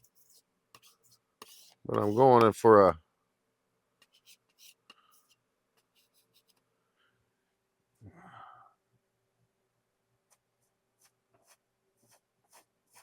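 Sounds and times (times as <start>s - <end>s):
palette knife scraping paint: 0.0s - 2.6s, 4.0s - 6.6s, 11.0s - 13.0s.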